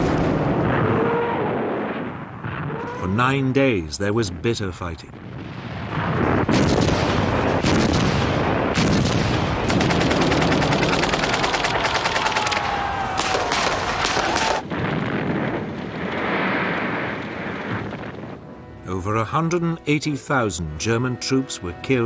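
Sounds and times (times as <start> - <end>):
gunshots: 0.0 - 1.2, 5.8 - 17.9
machine-gun fire: 5.9 - 17.9.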